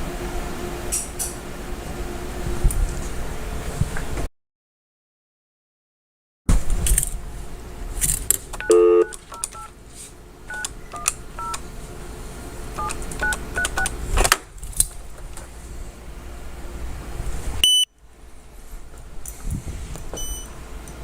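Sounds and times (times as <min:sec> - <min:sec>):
loud phone tone: 0:08.6 - 0:09.7
telephone keypad beeps: 0:08.6 - 0:09.7, 0:10.5 - 0:11.6, 0:12.8 - 0:13.9.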